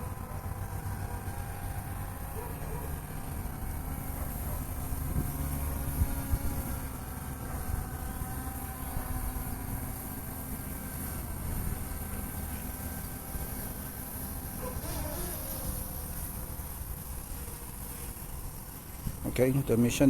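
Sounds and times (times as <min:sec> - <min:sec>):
drone propellers humming: 0:00.0 - 0:20.0
wind rumbling on microphone: 0:04.8 - 0:07.0.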